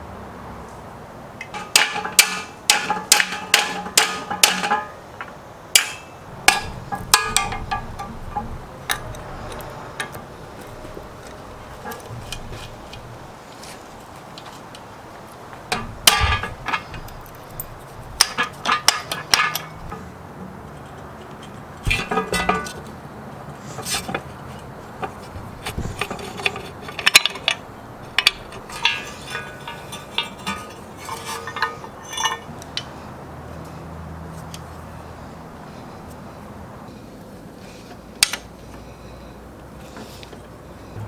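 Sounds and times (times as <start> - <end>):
metal tools knocking and clinking: 1.4 - 14.8, 15.5 - 23.0, 23.7 - 33.0.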